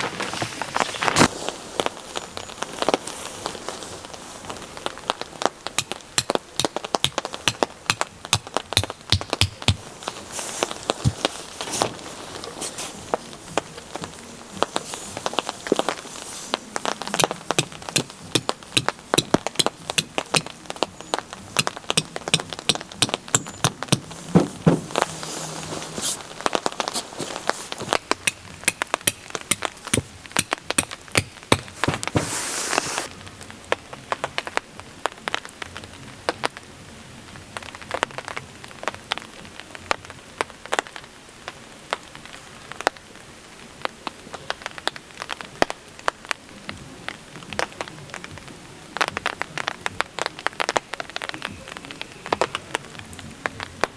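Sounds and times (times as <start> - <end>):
rain falling: 0.0 - 53.9
loud hiss: 27.0 - 33.1.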